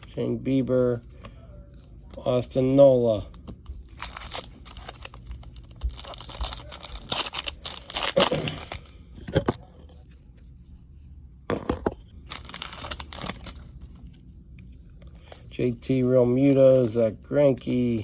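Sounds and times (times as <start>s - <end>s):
foil wrapper crinkling and tearing: 3.8s - 8.9s, 12.2s - 14.0s.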